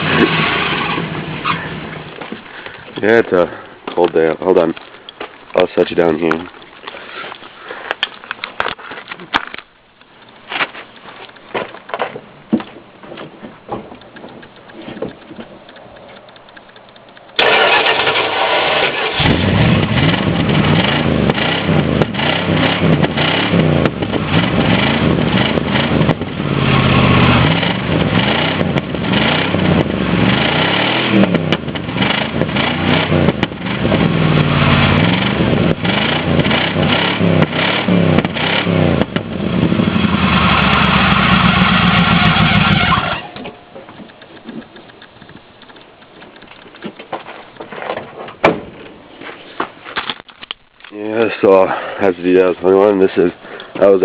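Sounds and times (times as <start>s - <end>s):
engine revving: 0.0s - 2.2s, 17.4s - 43.5s
van engine starting: 17.4s - 44.6s.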